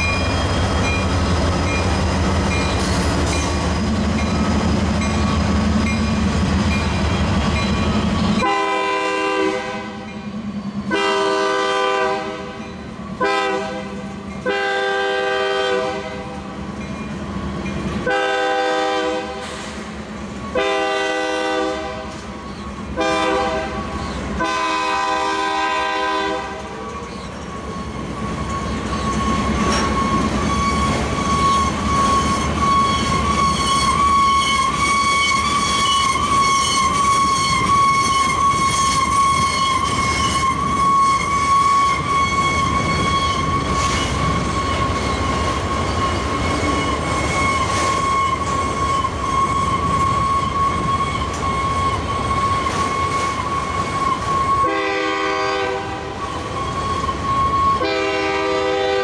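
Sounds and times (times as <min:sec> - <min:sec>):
high-pitched wheel squeal: 0:00.0 - 0:03.5, 0:26.9 - 0:54.8, 0:56.2 - 0:57.9
freight train rumbling with wheel clicks: 0:00.0 - 0:59.0.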